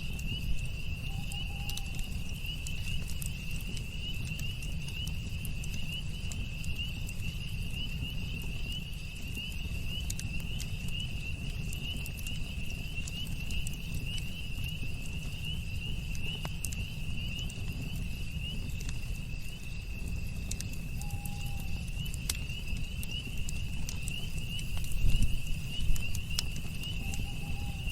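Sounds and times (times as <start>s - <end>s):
high-pitched insect trill: 0.0s - 4.6s, 20.8s - 27.9s
campfire crackling and popping: 0.0s - 27.9s.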